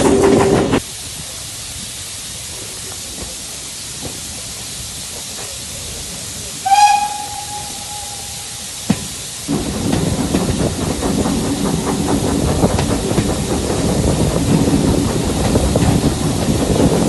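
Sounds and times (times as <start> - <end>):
steam locomotive hissing: 0.0 - 17.0
steam whistle: 6.6 - 9.0.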